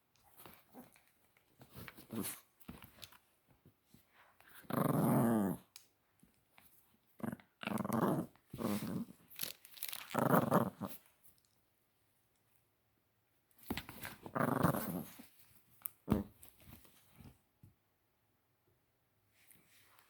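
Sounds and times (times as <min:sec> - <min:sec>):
puppy growling: 0:04.5 - 0:05.7, 0:07.2 - 0:09.2, 0:10.1 - 0:11.1, 0:14.2 - 0:15.3.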